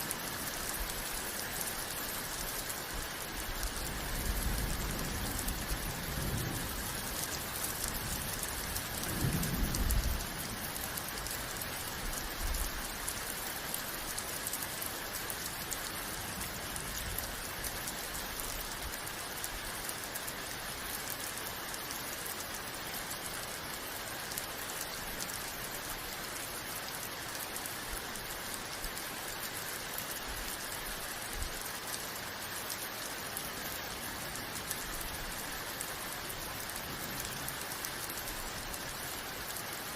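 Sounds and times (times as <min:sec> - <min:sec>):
rain falling: 0:00.0 - 0:39.9
thunder rumbling: 0:03.9 - 0:10.8.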